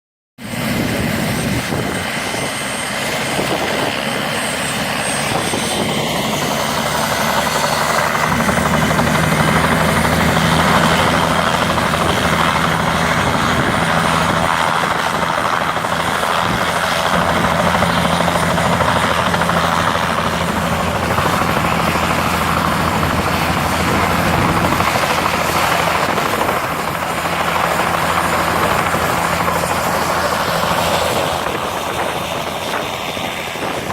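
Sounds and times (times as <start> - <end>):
helicopter engine and rotors: 0.4 - 33.9.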